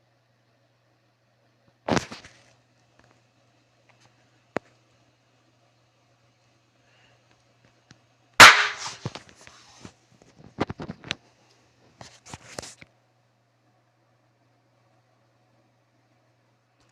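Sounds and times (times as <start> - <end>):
firecracker bang: 8.4 - 9.0.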